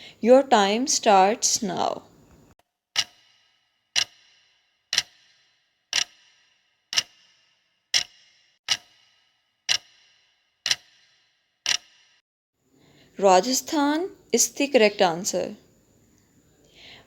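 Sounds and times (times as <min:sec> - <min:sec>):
countdown timer ticking: 0:04.0 - 0:04.3, 0:04.9 - 0:06.3, 0:06.9 - 0:07.3, 0:08.0 - 0:09.0, 0:09.7 - 0:10.1, 0:10.7 - 0:11.0.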